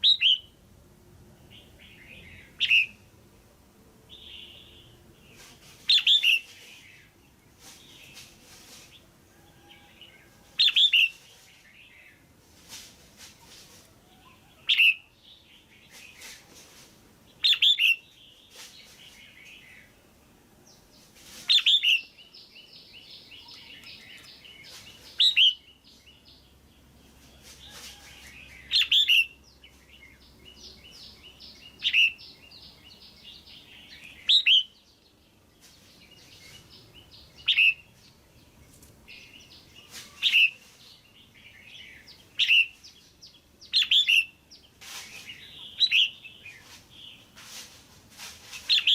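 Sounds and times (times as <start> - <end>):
bird sharp calls: 0.0 - 0.5, 1.8 - 3.0, 14.1 - 15.1, 23.0 - 25.6, 30.8 - 32.5, 36.2 - 37.9, 39.1 - 40.7, 41.6 - 43.0.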